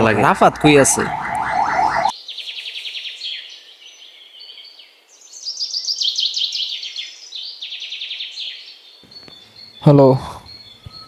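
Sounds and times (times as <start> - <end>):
birds trilling: 0.0 - 2.1.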